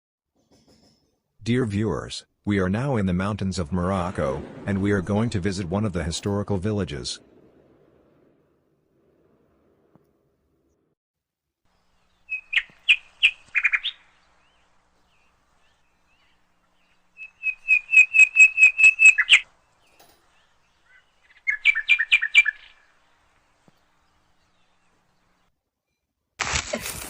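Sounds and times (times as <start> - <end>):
songbird chirping: 11.7 - 26.0.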